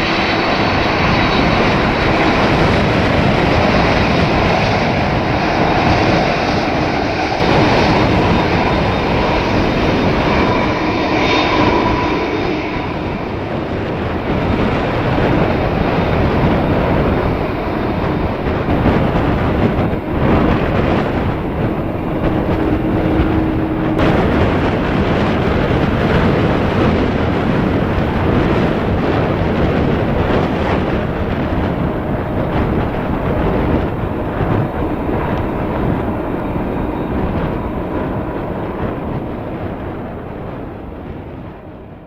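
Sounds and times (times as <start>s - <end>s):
steady tone: 0.0s - 28.5s
jet engines running: 0.0s - 42.0s.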